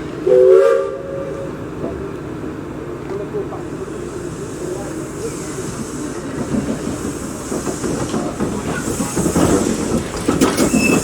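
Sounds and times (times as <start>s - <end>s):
steam hissing: 3.6s - 11.0s
train wheels clattering: 5.6s - 11.0s.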